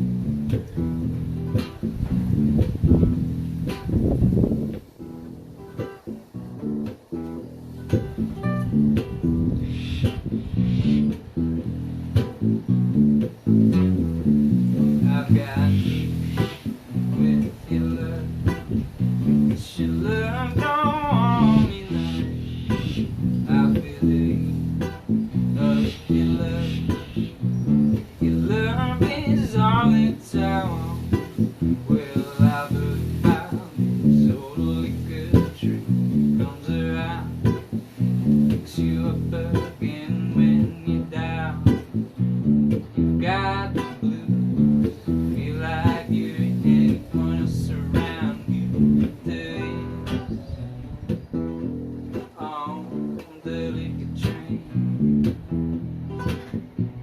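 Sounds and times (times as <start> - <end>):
acoustic guitar strumming chords: 0.0 - 57.0
wavering lead guitar melody: 0.0 - 57.0.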